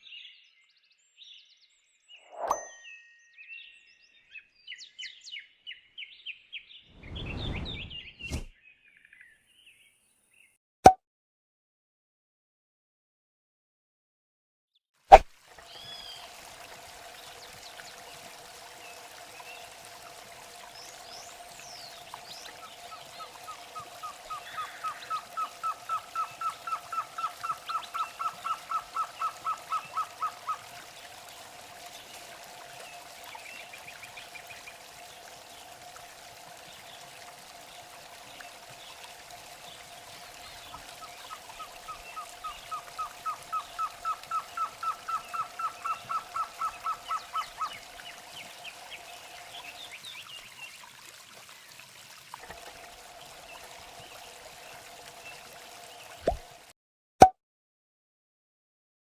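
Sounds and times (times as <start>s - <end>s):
bird calling in rapid repeated notes: 23.4s - 30.6s, 41.0s - 47.8s.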